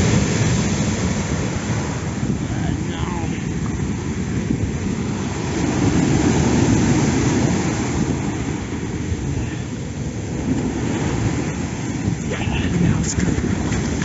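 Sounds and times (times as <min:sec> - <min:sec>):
waves surging against rocks: 0:00.0 - 0:14.0
wind buffeting microphone: 0:00.0 - 0:14.0.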